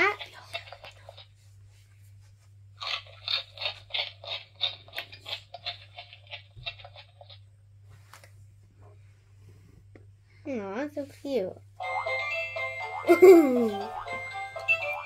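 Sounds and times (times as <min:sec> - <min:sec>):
electronic crunchy chewing from toy speaker: 0:02.8 - 0:07.4.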